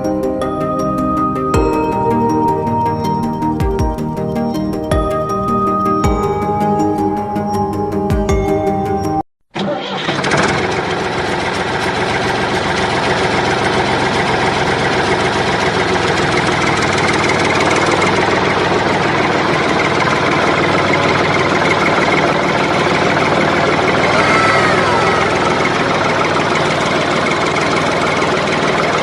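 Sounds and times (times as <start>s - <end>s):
small engine idling: 9.6s - 29.0s.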